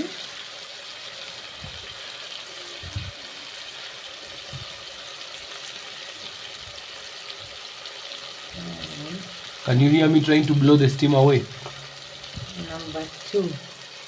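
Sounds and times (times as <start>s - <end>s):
sauce sizzling in a pot: 0.0s - 14.0s
soft low thuds: 12.3s - 12.6s.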